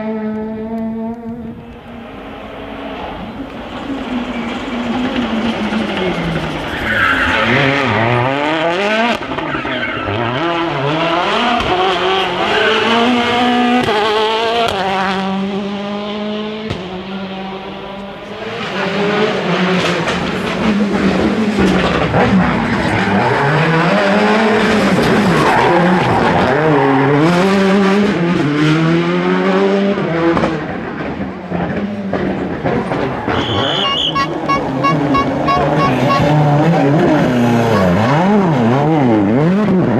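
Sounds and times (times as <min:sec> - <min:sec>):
rally car engines revving: 0:00.0 - 0:39.9
tyre noise: 0:32.2 - 0:39.1.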